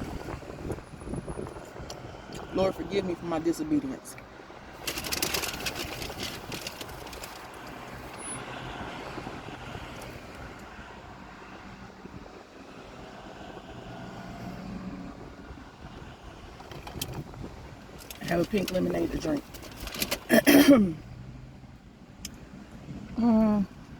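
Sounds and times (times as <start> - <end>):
crackling rustles: 4.7 - 8.3, 16.6 - 20.5.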